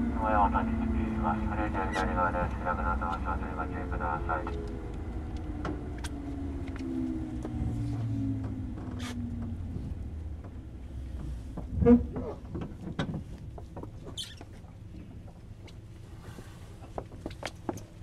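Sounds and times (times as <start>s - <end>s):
electric train whine: 0.0s - 10.9s.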